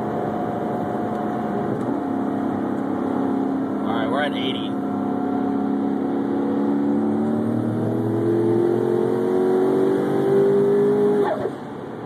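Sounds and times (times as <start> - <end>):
car engine at full throttle: 0.0 - 12.0.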